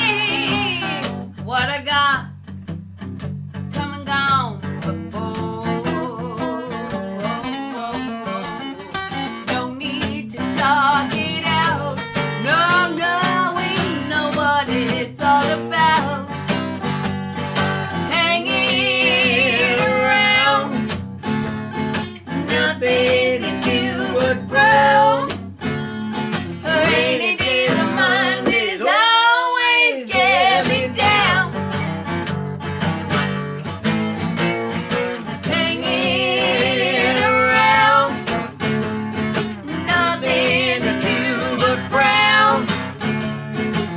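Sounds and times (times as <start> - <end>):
person singing with vibrato: 0.0 - 1.1, 4.8 - 6.9, 9.5 - 16.4, 18.0 - 20.8, 22.3 - 25.3, 26.6 - 31.5, 35.5 - 38.2, 39.6 - 42.8
acoustic guitar strumming: 0.0 - 43.9.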